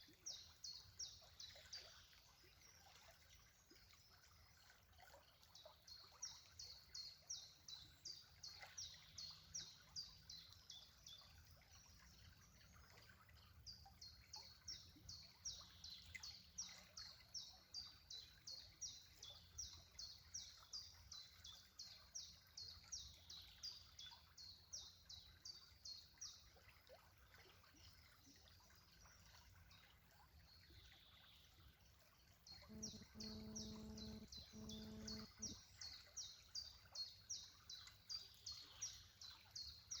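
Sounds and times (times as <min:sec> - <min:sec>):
low steady hum: 0:32.5 - 0:35.7
faint high chirps: 0:32.6 - 0:35.6.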